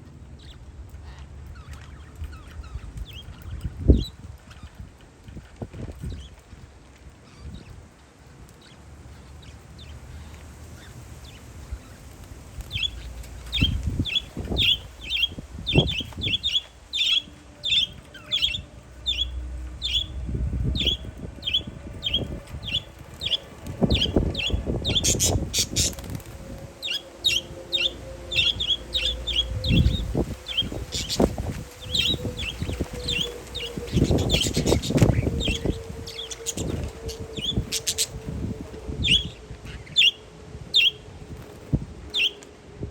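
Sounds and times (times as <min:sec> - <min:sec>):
faint drone of passing plane: 0:00.0 - 0:42.9
wind rumbling on microphone: 0:00.0 - 0:42.9
parakeets chirping: 0:12.7 - 0:38.2, 0:39.0 - 0:40.2.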